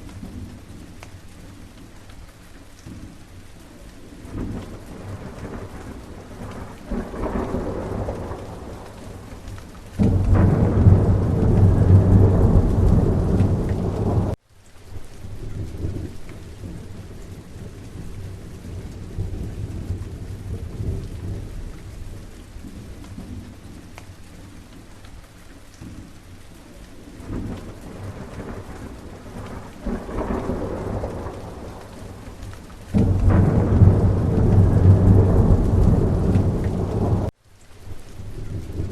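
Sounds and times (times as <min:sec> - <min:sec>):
steady rain: 0:00.0 - 0:38.9
rolling thunder: 0:04.2 - 0:14.4, 0:15.4 - 0:23.6, 0:27.2 - 0:37.3.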